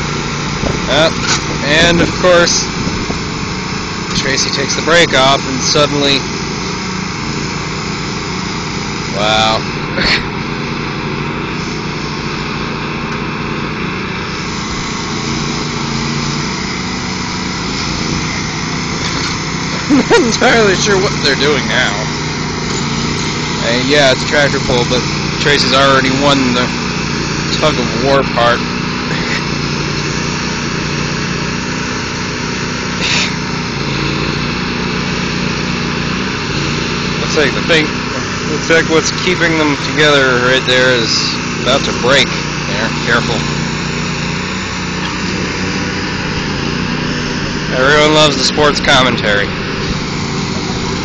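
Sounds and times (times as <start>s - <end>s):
riding lawn mower engines: 0.0s - 51.0s
short hiss: 33.0s - 33.5s.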